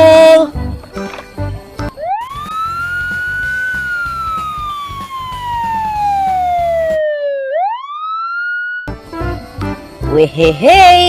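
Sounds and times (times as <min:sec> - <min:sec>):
background music: 0:00.0 - 0:07.0, 0:08.9 - 0:11.0
siren wailing: 0:01.9 - 0:08.9.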